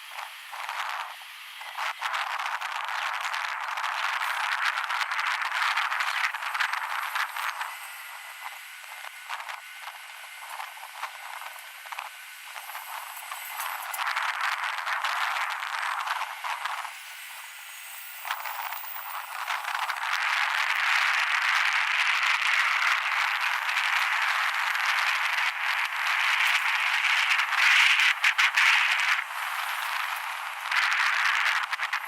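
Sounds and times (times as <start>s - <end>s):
wind buffeting microphone: 18.2s - 32.0s.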